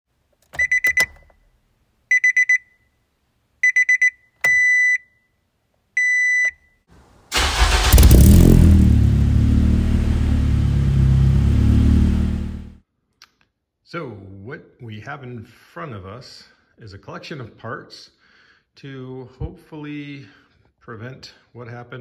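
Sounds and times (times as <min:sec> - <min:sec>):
car engine starting and revving: 0:07.3 - 0:12.8.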